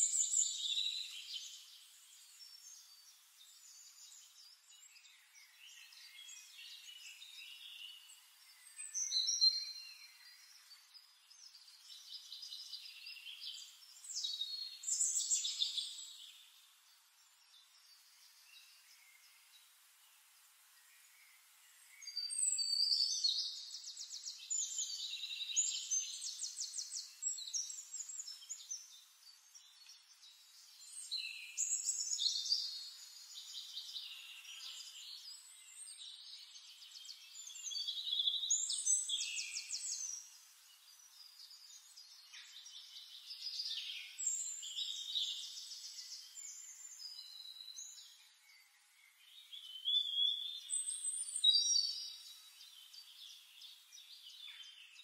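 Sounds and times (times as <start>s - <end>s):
songbird trilling and chirping: 22.0s - 55.0s.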